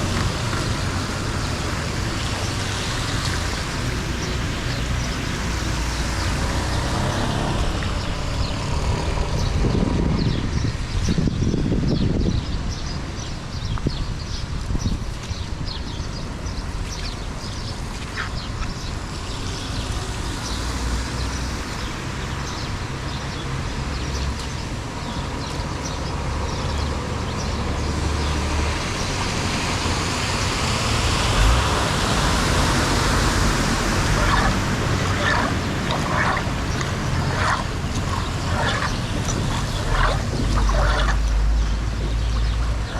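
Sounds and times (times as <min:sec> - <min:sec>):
water rushing into drain: 0:30.3 - 0:42.9.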